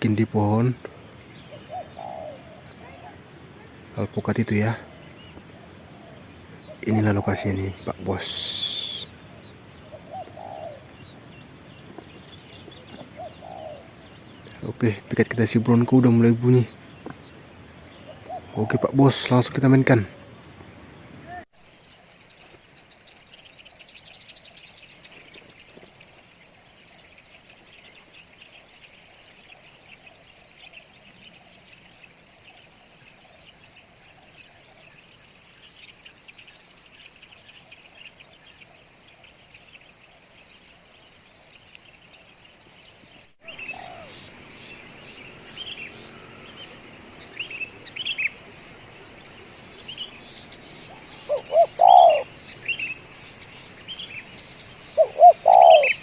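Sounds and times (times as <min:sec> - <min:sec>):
high insect drone: 0:00.0 - 0:56.0
small birds chirping: 0:00.0 - 0:56.0
dove cooing: 0:00.3 - 0:14.7, 0:16.3 - 0:19.1, 0:43.4 - 0:44.2, 0:50.9 - 0:52.4, 0:55.0 - 0:56.0.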